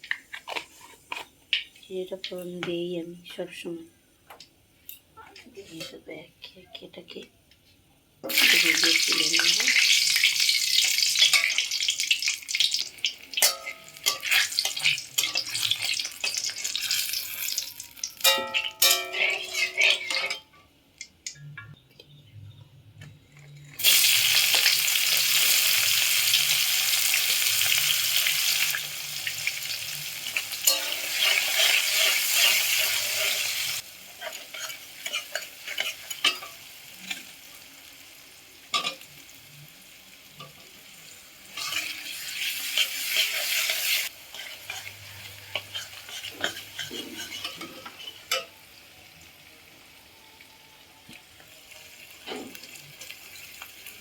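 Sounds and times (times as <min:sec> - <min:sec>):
food sizzling in hot oil: 0:08.2 - 0:20.4, 0:23.8 - 0:50.4, 0:51.2 - 0:54.0
stirring clicks and scrapes: 0:45.5 - 0:48.2.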